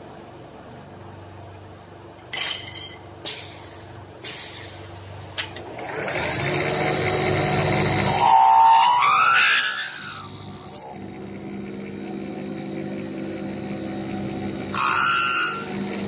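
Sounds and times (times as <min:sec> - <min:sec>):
lathe motor hum: 0:05.6 - 0:16.0
cutter biting into spinning wood: 0:05.8 - 0:16.0.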